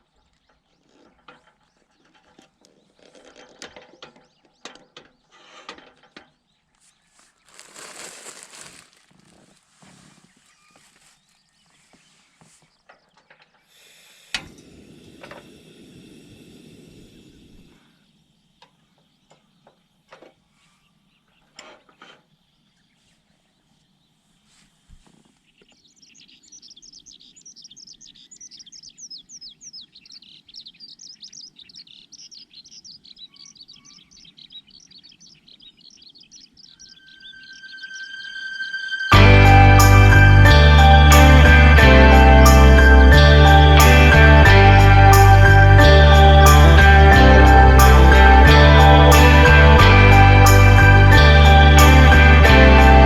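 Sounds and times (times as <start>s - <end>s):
low rustling: 7.0s - 12.7s
songbird chirping rapidly: 25.4s - 53.0s.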